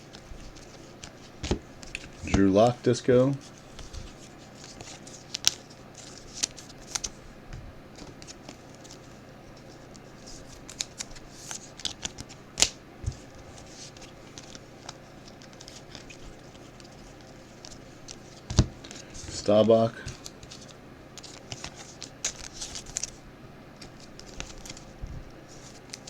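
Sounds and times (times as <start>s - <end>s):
trading cards being handled: 0.0s - 7.2s, 7.9s - 23.2s, 23.8s - 26.0s
wrappers rustling: 7.9s - 23.2s.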